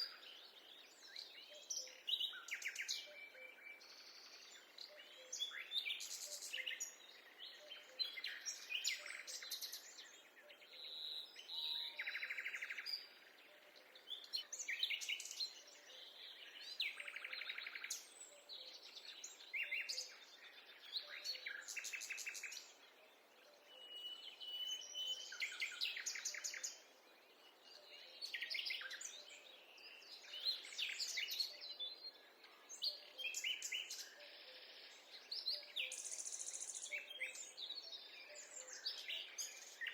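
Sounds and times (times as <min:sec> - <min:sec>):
songbirds singing and trilling: 0:00.0 - 0:39.9.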